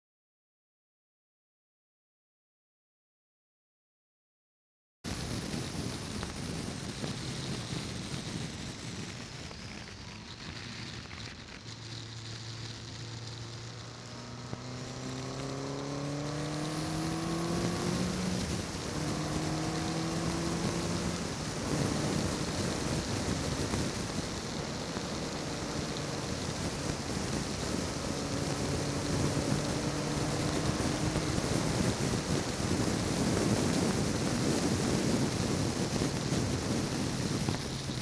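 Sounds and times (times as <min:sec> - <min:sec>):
car engine accelerating: 0:10.8 - 0:37.6
wind rush: 0:12.4 - 0:38.0.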